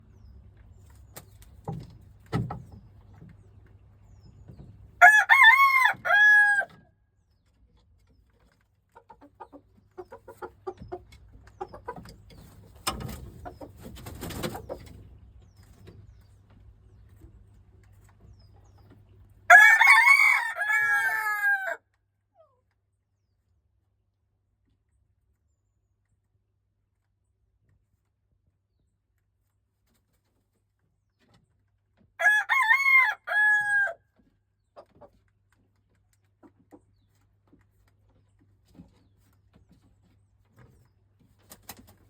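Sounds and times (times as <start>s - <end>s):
rooster crowing: 5.0s - 6.7s, 19.5s - 21.8s, 32.2s - 34.0s
soft clucking: 8.4s - 15.1s.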